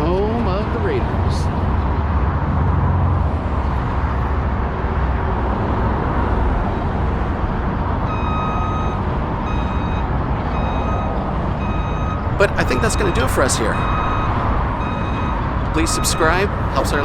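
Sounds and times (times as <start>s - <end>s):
heavy road traffic rumble: 0.0s - 17.0s
reversing alarm beeps: 8.1s - 16.4s.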